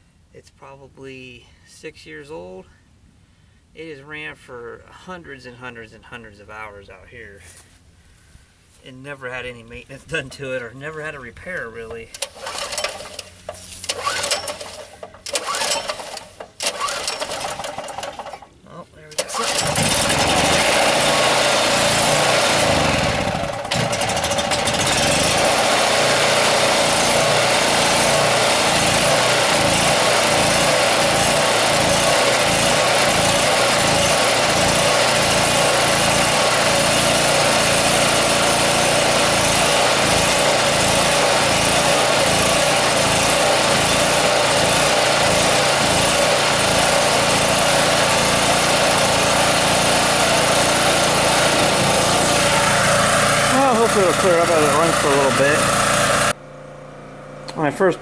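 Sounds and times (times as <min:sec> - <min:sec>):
generator engine running: 0:11.9 - 0:18.5, 0:19.1 - 0:58.0.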